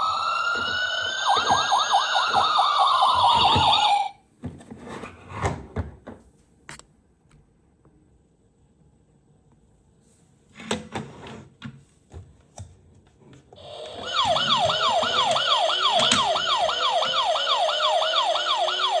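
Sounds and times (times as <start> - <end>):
toy police siren yelping: 0.0 - 4.2, 13.6 - 19.0.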